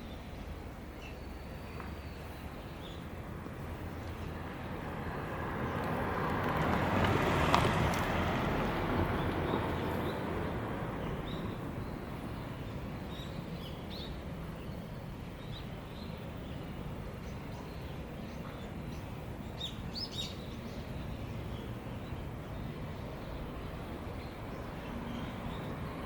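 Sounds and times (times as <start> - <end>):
vehicle passing by: 3.6 - 12.3.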